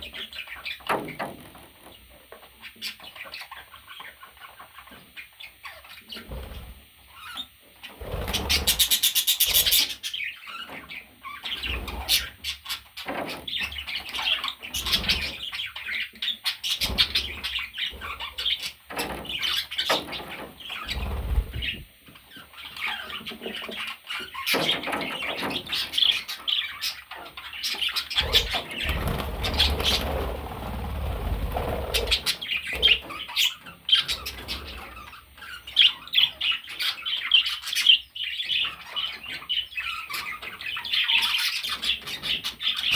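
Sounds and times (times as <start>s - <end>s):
budgerigar chirping and chattering: 7.2s - 30.1s, 31.8s - 42.9s.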